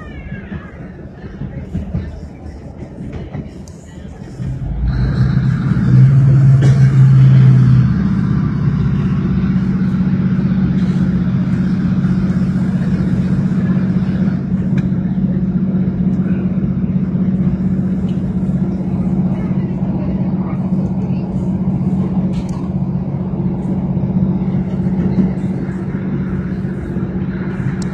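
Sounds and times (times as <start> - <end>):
diesel train engines droning: 0.0 - 27.9.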